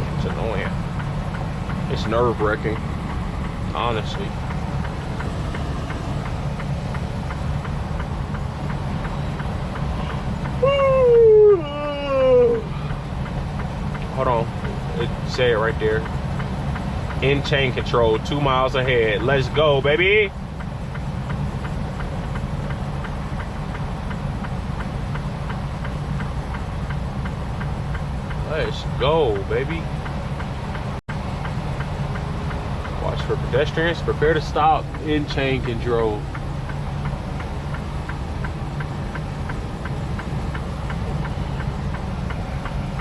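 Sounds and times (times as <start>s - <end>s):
diesel truck engine droning: 0.0s - 43.0s
light ticking: 0.0s - 43.0s
tire chains clicking on road: 0.5s - 10.6s.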